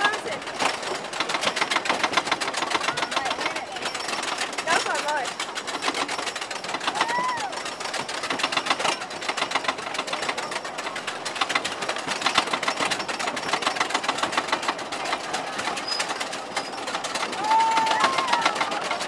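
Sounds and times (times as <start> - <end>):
roller coaster train clattering on track: 0.0 - 19.0.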